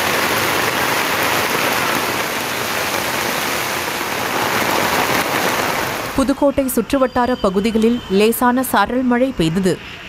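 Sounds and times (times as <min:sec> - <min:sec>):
rain on pavement: 0:00.0 - 0:06.4.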